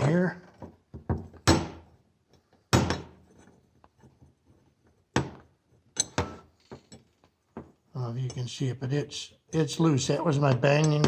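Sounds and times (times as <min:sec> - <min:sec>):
sharp metal knocks: 0:01.2 - 0:01.9.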